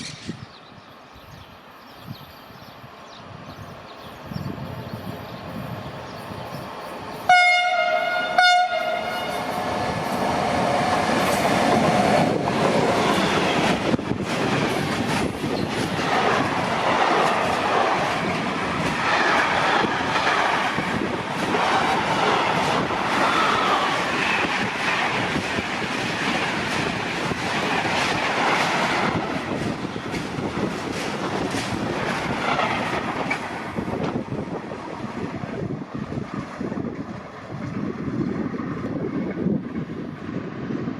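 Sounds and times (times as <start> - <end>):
train wheels rushing on rails: 0.0 - 40.9
train horn blasts: 7.3 - 9.6.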